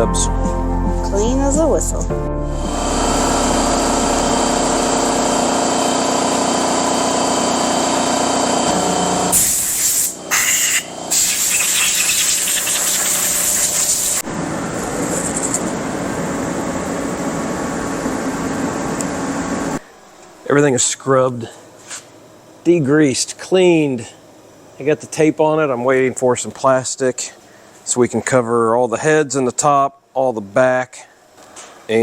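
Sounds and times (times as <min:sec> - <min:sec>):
hissing spray: 0:09.3 - 0:14.2.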